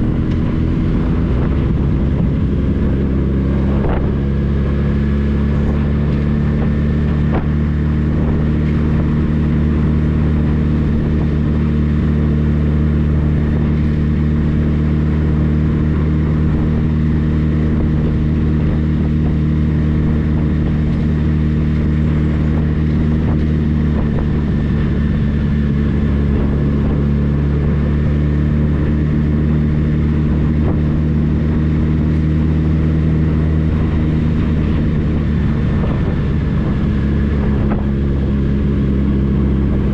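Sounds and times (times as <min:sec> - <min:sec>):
motorcycle engine droning: 0:00.0 - 0:39.9.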